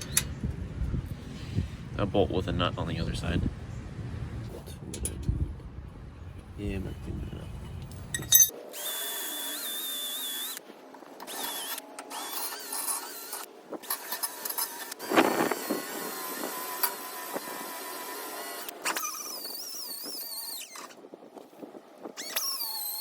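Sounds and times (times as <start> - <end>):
grinder motor whining: 8.3 - 21.0, 22.2 - 23.0
grinding on steel: 11.2 - 20.8.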